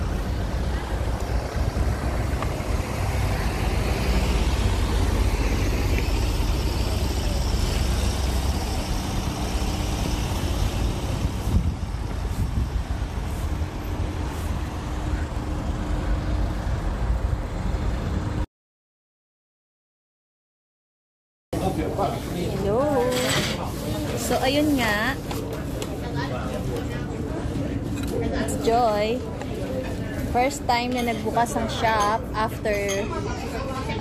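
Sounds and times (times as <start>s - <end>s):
car and road rumble: 0.0s - 18.5s.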